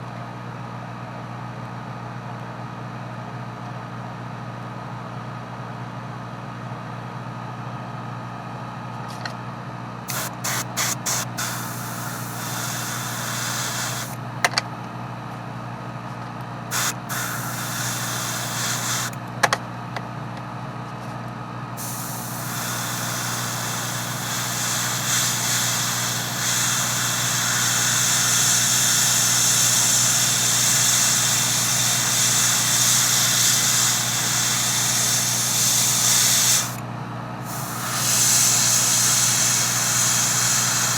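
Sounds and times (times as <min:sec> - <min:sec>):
compressor motor hum: 0:08.5 - 0:40.9
airbrush air spurts: 0:10.1 - 0:14.2, 0:16.7 - 0:19.2, 0:21.8 - 0:36.8, 0:37.4 - 0:40.9
airbrush spraying paint: 0:10.1 - 0:14.2, 0:16.7 - 0:19.2, 0:21.8 - 0:36.8, 0:37.4 - 0:40.9.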